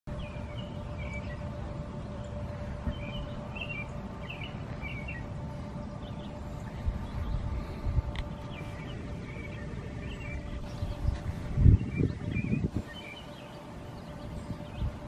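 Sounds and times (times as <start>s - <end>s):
faint hum: 0.1s - 15.0s
low rumble: 0.1s - 15.0s
songbirds chirping: 0.1s - 15.0s.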